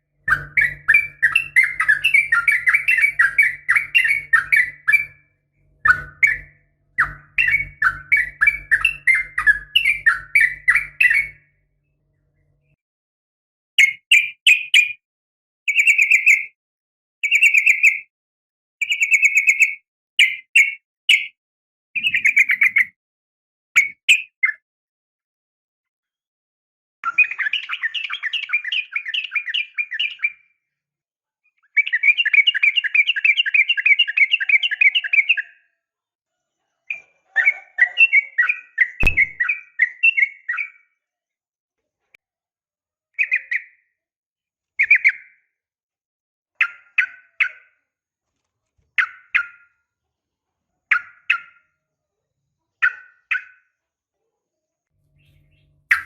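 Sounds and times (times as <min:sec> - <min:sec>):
bird chattering trills: 0:22.0 - 0:22.9, 0:55.2 - 0:56.0
sharp click: 0:39.0 - 0:39.4.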